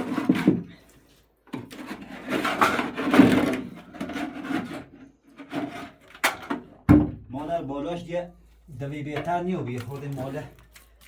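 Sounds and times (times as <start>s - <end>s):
hand tool scraping hard surface: 0.0s - 0.8s, 1.7s - 6.0s.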